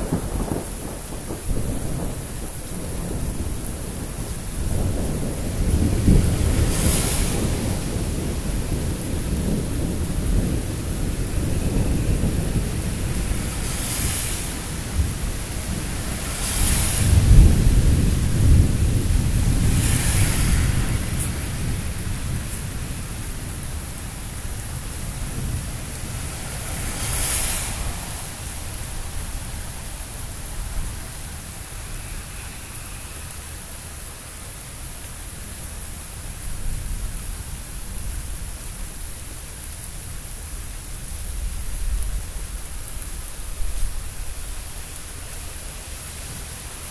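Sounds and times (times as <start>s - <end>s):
thunder rumbling: 0.0s - 34.0s
steady rain: 0.0s - 46.9s.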